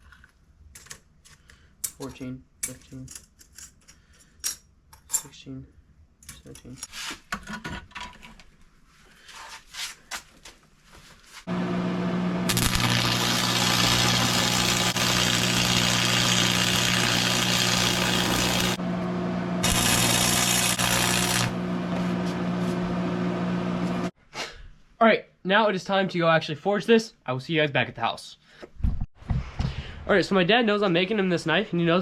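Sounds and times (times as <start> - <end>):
machine humming: 11.5 - 24.1
loud hiss: 12.5 - 18.8.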